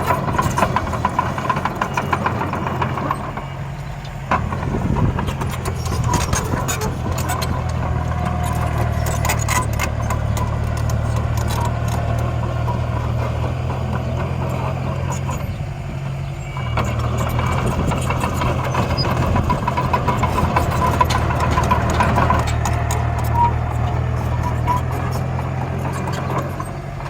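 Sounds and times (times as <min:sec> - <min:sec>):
small clicks and knocks: 0:04.0 - 0:13.1.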